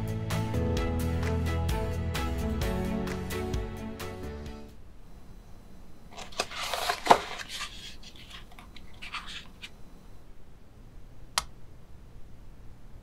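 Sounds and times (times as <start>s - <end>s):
cardboard scraping and rustling: 6.1s - 9.7s.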